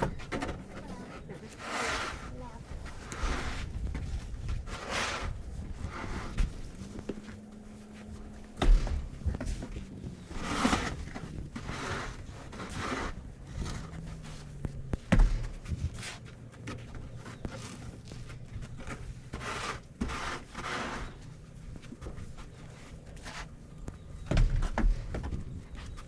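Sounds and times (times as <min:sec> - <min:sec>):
heavy thumps: 0:08.2 - 0:11.7, 0:14.6 - 0:16.0.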